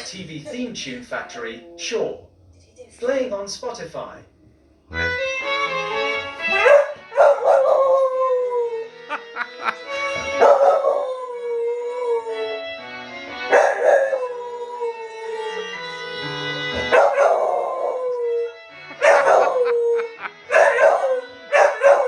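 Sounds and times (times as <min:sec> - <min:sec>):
dog howling: 0:00.5 - 0:02.6, 0:06.5 - 0:09.0, 0:10.3 - 0:12.8, 0:13.5 - 0:15.9, 0:16.7 - 0:22.0
tv theme music through speaker: 0:04.9 - 0:07.8, 0:15.6 - 0:22.0.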